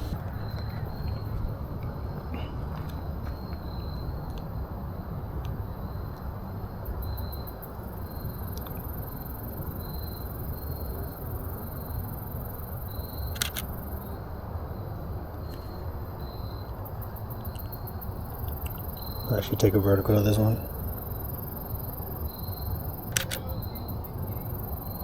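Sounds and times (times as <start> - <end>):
insects chirping: 0.0 - 25.0
camera shutter click: 13.2 - 13.9, 23.0 - 23.7.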